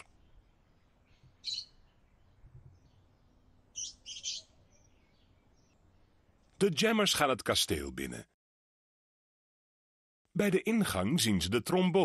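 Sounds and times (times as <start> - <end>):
faint bird chirps: 0.0 - 6.5.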